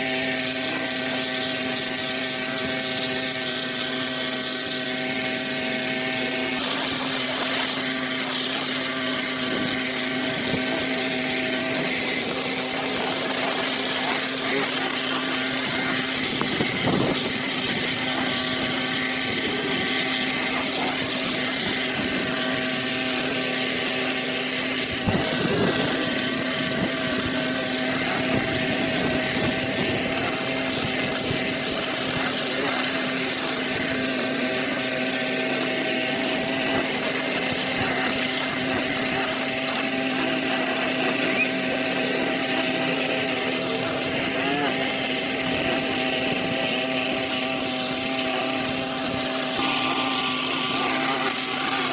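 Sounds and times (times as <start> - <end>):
small engine power tool running: 0.0 - 51.9.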